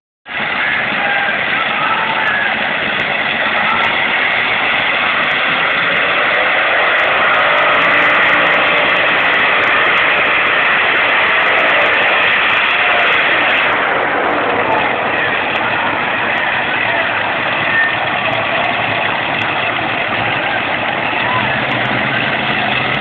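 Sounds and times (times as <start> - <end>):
vehicle engine droning loudly: 0.3 - 23.0.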